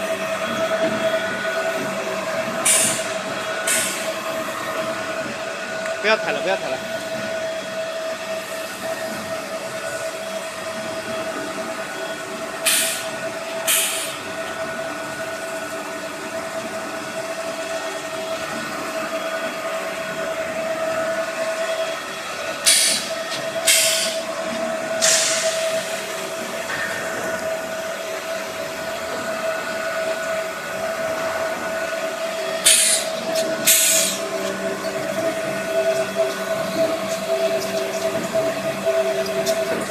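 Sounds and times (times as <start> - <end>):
compactor whining hum: 0.0 - 39.9.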